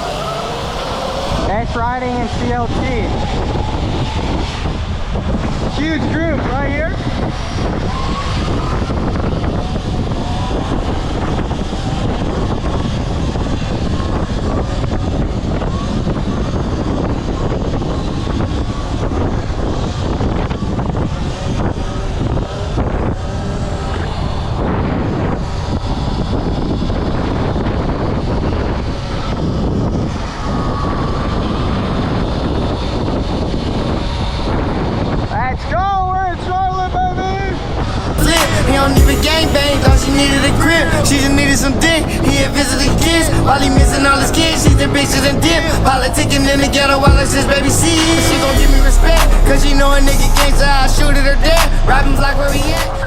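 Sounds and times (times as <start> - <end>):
wind rushing over microphone: 0.0 - 53.0
electric motor whine: 38.1 - 53.0.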